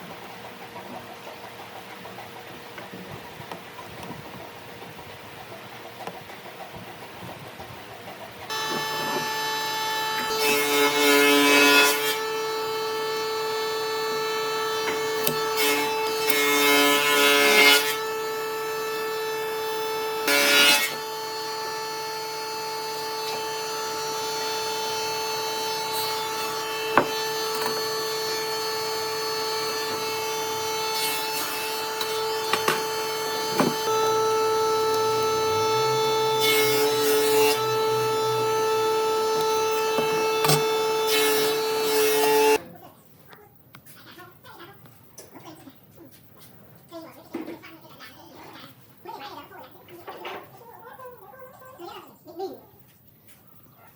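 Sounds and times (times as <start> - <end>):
power saw cutting wood: 8.5 - 42.6
power tool whining: 8.5 - 42.6.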